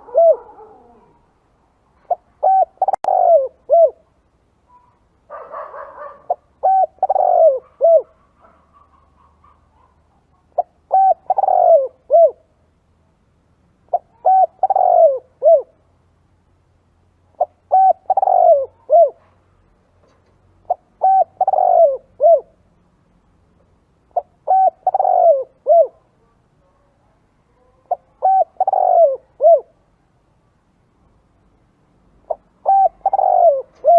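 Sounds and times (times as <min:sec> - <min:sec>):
dove cooing: 0:00.0 - 0:01.3, 0:02.0 - 0:04.1, 0:04.8 - 0:12.5, 0:13.9 - 0:15.8, 0:17.4 - 0:19.3, 0:20.6 - 0:22.6, 0:24.1 - 0:26.0, 0:27.6 - 0:29.8, 0:32.2 - 0:33.9.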